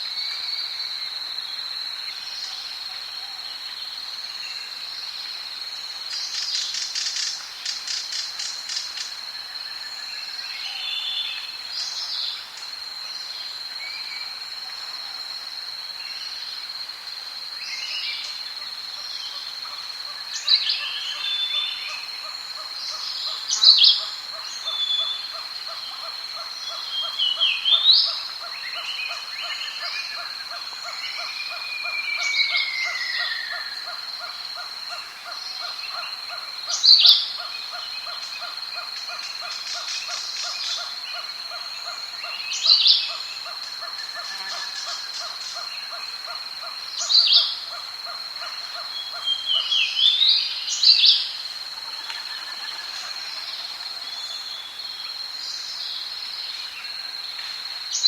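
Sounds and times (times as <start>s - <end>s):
high insect drone: 0.0s - 58.0s.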